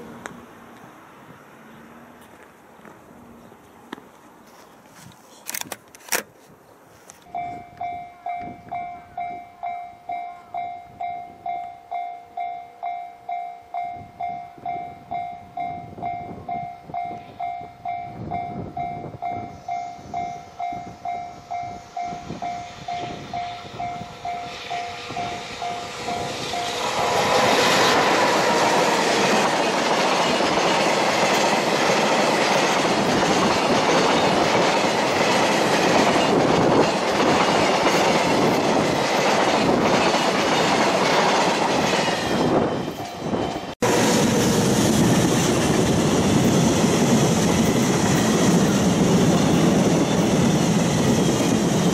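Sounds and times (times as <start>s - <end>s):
train passing at speed: 0.0s - 4.4s, 7.3s - 51.9s
level-crossing warning bell: 7.3s - 44.7s.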